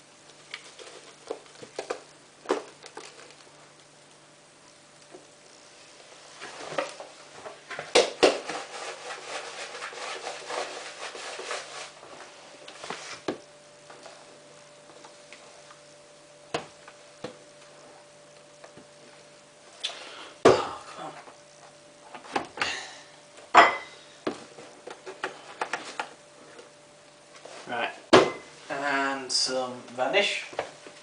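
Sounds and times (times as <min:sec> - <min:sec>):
low steady hum: 0:00.0 - 0:31.0
rustling and rubbing: 0:06.0 - 0:13.3.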